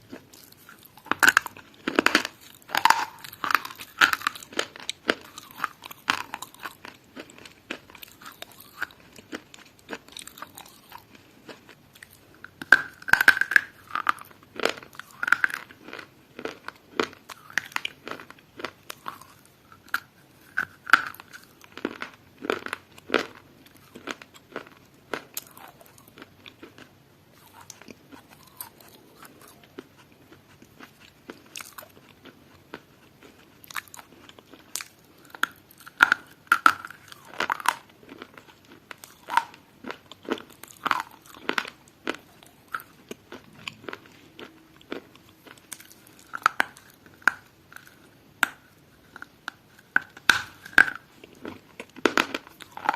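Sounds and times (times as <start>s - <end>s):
crunchy food being chewed: 0.0s - 52.9s.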